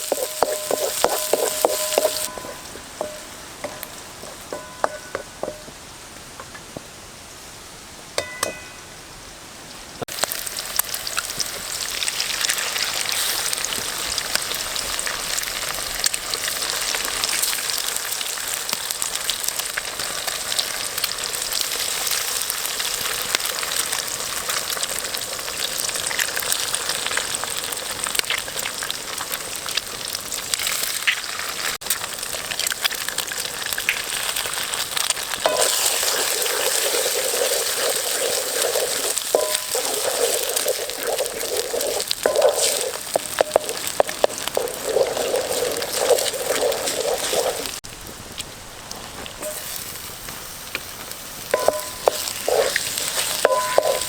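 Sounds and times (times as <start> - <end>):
food sizzling: 0.0 - 6.0, 10.0 - 54.0
light clinks: 8.2 - 8.9.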